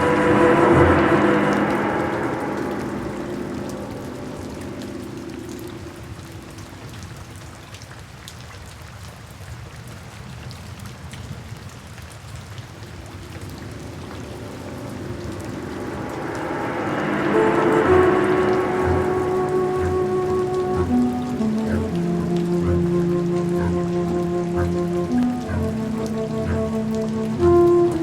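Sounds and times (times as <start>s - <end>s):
soft background music: 0.0s - 5.7s, 14.4s - 28.0s
raindrops ticking sharply: 0.0s - 8.4s, 12.0s - 28.0s
steady rain: 0.0s - 28.0s.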